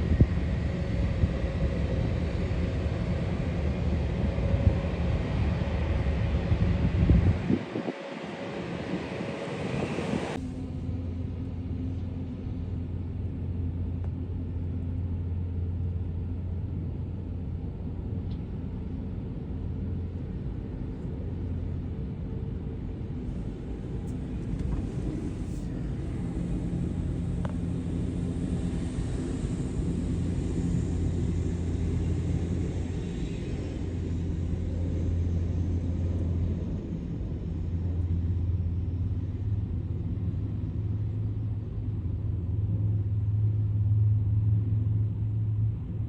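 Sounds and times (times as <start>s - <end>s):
distant jet engines rumbling: 18.0s - 46.0s.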